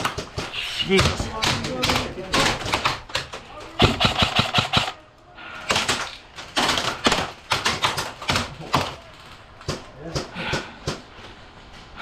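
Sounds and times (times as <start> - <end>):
airsoft guns firing bursts: 3.8 - 5.0.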